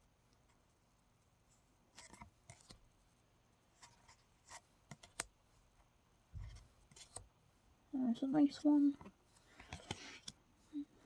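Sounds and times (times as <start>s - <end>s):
trading cards clicking and rustling: 9.6s - 10.4s.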